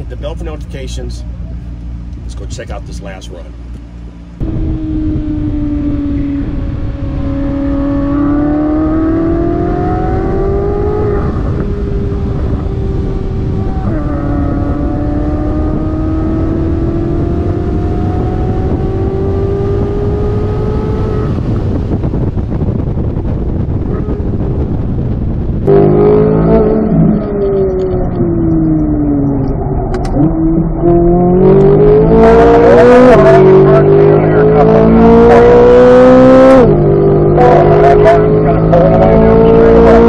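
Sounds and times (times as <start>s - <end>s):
car engine revving at speed: 0.0s - 40.0s
wind rush on microphone: 4.4s - 34.0s.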